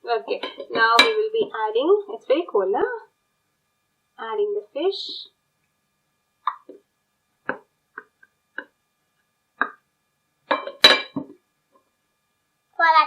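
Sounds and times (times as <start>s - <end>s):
light knocks and taps on a dish: 7.4s - 8.7s, 10.5s - 11.4s.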